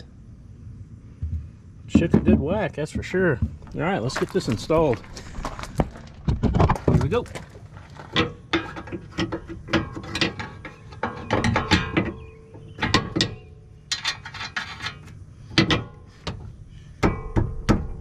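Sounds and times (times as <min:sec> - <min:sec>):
metallic clicks and clanks: 0:05.8 - 0:12.2.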